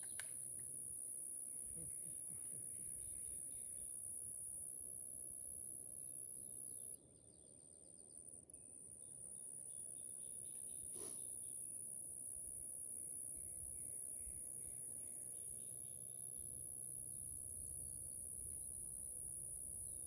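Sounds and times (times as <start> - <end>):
faint click: 0.0 - 0.7
insects trilling: 0.0 - 20.0.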